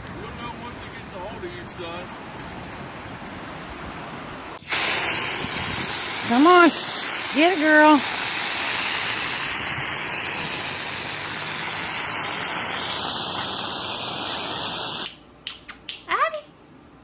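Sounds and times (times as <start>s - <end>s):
loud rushing hiss: 4.6s - 15.1s.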